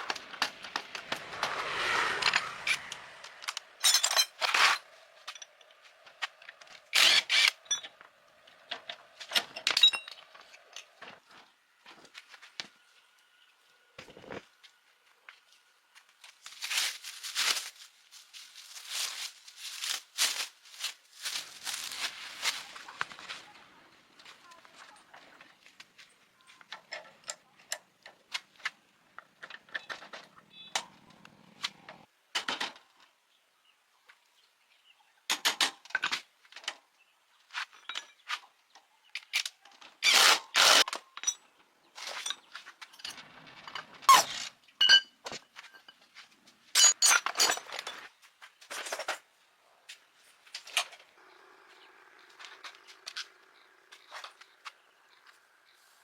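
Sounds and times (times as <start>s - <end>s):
hand tools clinking on metal: 2.7s - 6.0s, 9.3s - 11.0s, 44.8s - 49.2s.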